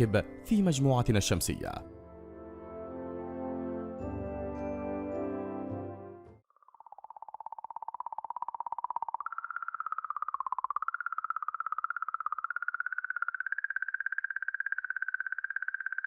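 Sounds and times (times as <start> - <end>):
wavering whistle-like electronic tone: 6.8 - 16.0.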